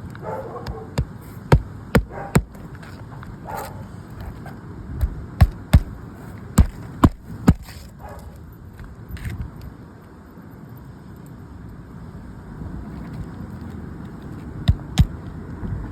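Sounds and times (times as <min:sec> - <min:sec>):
hammer striking nails: 0:00.6 - 0:02.6, 0:05.0 - 0:06.0, 0:06.6 - 0:07.7, 0:14.7 - 0:15.2.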